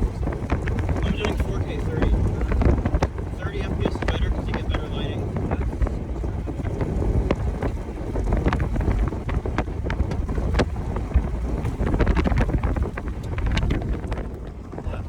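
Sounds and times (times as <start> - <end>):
moving vehicle rumble: 0.0 - 15.0
wind buffeting microphone: 0.0 - 15.0.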